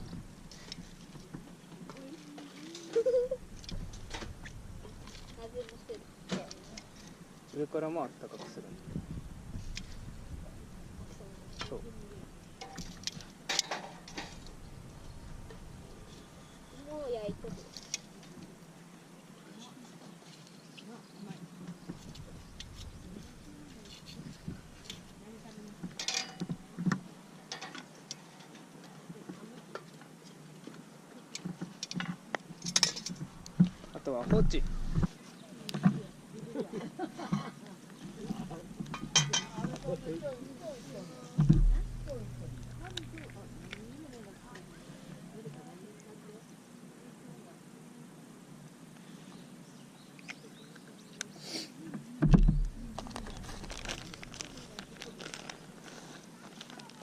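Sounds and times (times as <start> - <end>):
food crackling over campfire: 0.0 - 7.6, 41.4 - 45.3, 52.4 - 57.0
dull thump: 41.4 - 44.7, 52.2 - 54.4.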